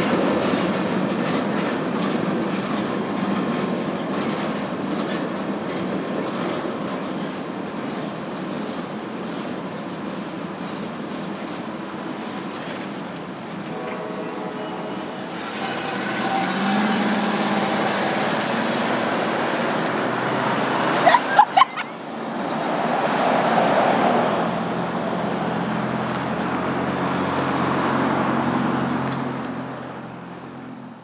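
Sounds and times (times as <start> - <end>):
freight train rumbling past: 0.0 - 31.0
low engine tones: 13.7 - 22.0.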